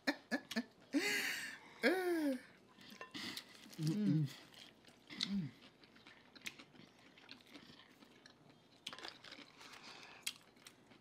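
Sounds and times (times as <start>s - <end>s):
people chewing food: 2.3s - 11.0s
small crunches: 3.4s - 11.0s.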